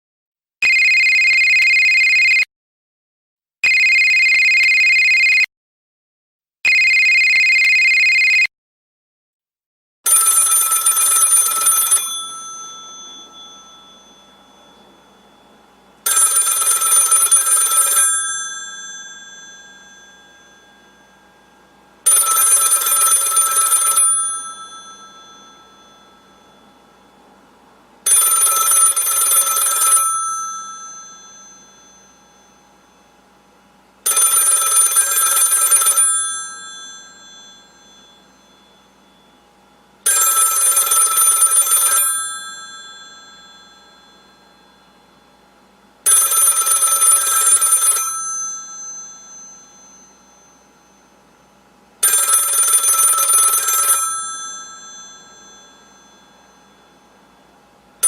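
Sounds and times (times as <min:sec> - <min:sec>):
electronic telephone ringer: 0:00.6 - 0:02.5, 0:03.6 - 0:05.5, 0:06.7 - 0:08.5, 0:10.1 - 0:27.4, 0:28.0 - 0:58.0
old telephone bell ringing: 0:10.1 - 0:27.4, 0:28.0 - 0:58.0
faint hum: 0:11.5 - 0:34.4, 0:35.5 - 0:40.6, 0:47.5 - 0:58.0.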